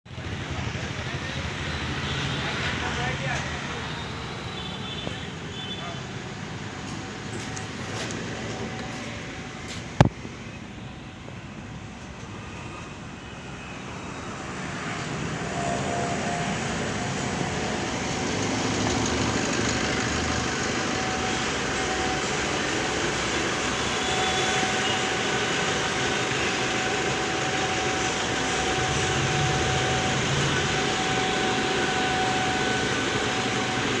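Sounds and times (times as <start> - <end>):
car engine running: 26.8 - 34.0.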